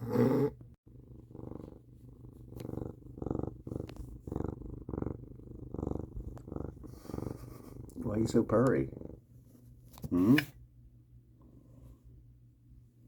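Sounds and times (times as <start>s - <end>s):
cat purring: 0.0s - 10.4s.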